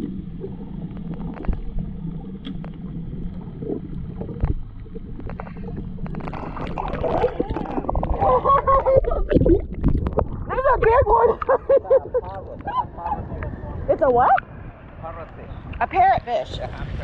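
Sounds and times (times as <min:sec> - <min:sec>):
low rumble: 0:00.0 - 0:17.0
underwater water moving: 0:00.0 - 0:17.0
wavering muffled pitched sound: 0:03.8 - 0:14.5.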